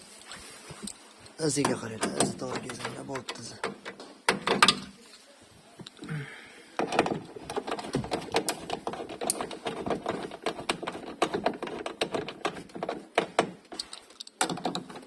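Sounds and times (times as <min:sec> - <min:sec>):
plastic and metal parts clicking: 0:01.6 - 0:04.9, 0:06.8 - 0:15.0.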